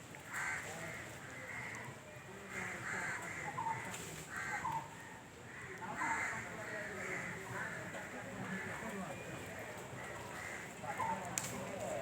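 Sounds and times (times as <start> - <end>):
crows cawing: 0.3 - 1.9, 2.5 - 4.9, 5.5 - 7.9, 10.0 - 11.2.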